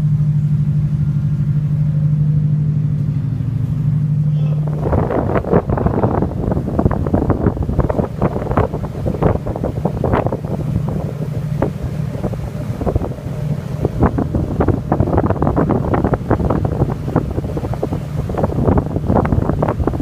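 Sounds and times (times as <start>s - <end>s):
ferry engine drone: 0.0s - 20.0s
wind buffeting microphone: 4.4s - 20.0s.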